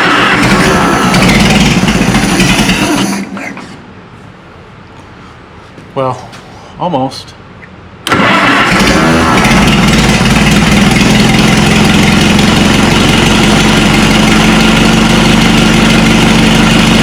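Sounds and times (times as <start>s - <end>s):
tractor engine idling: 0.0s - 3.8s, 8.0s - 17.0s.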